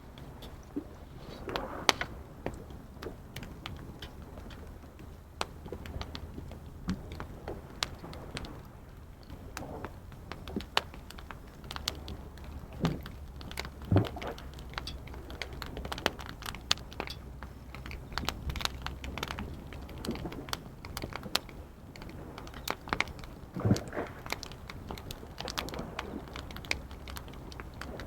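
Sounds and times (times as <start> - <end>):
wood fire crackling and popping: 5.4 - 28.0.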